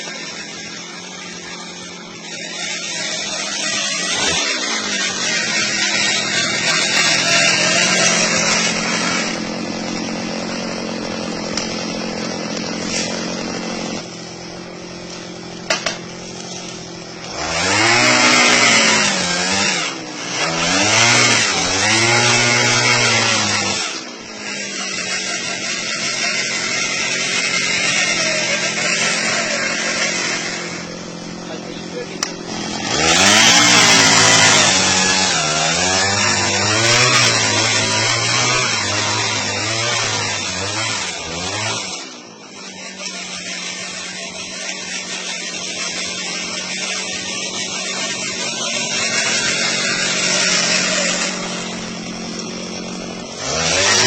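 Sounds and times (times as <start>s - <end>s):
small petrol engine revving: 0.0s - 54.0s.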